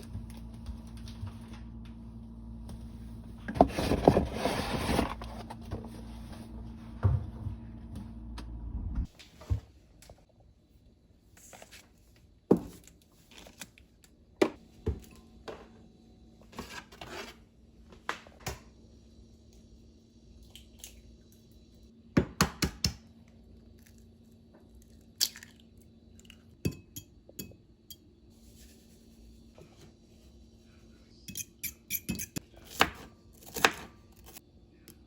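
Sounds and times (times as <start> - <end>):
rustling and scraping: 3.4 - 7.7.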